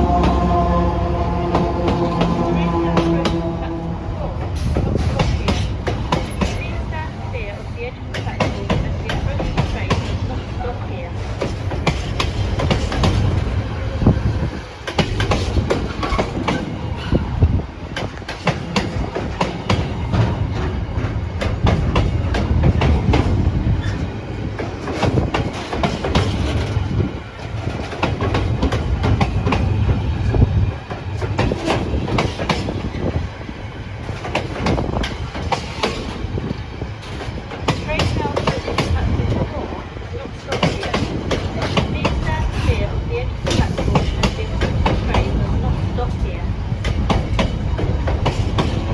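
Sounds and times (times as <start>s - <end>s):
diesel freight train passing: 0.0s - 48.9s
wheels clattering over rail joints: 14.8s - 33.4s.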